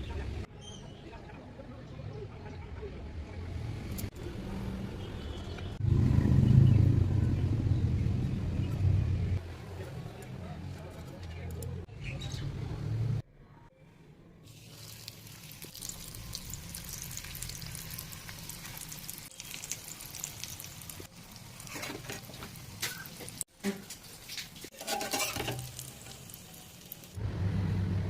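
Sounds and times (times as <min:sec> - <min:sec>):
snacks frying in hot oil: 0:14.5 - 0:27.2.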